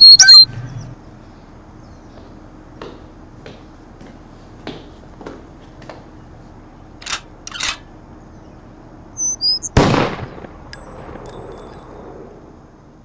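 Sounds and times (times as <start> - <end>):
high-pitched ringing tones: 0.0 - 0.6
bird chirping: 0.0 - 2.4, 8.1 - 9.8
shotgun blast: 9.7 - 11.2.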